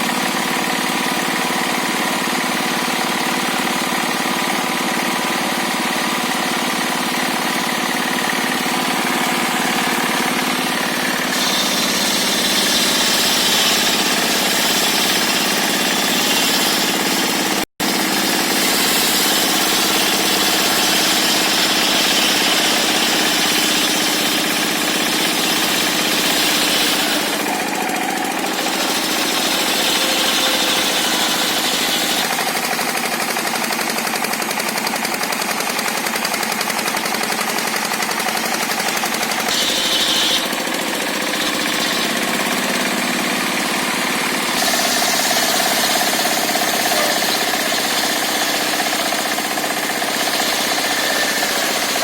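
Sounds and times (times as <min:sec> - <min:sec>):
circular sawmill cutting timber: 0:00.0 - 0:52.0.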